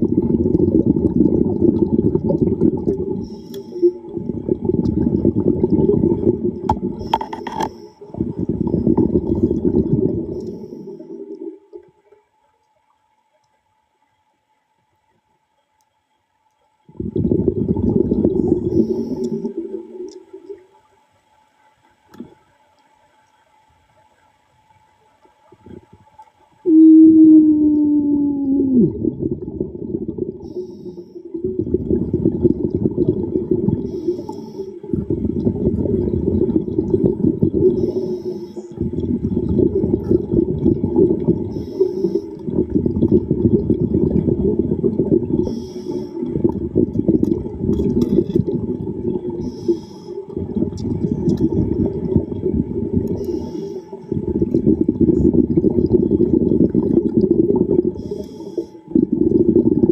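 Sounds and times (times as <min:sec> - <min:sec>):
exhaled bubbles underwater: 0:00.0 - 0:12.2, 0:16.9 - 0:21.1, 0:25.3 - 0:59.9
regulator inhaling hiss: 0:03.2 - 0:04.0, 0:10.3 - 0:11.2, 0:18.7 - 0:19.6, 0:30.4 - 0:31.4, 0:33.8 - 0:35.0, 0:37.7 - 0:38.8, 0:41.4 - 0:42.4, 0:45.4 - 0:46.3, 0:49.4 - 0:50.3, 0:53.1 - 0:54.1, 0:57.9 - 0:58.9.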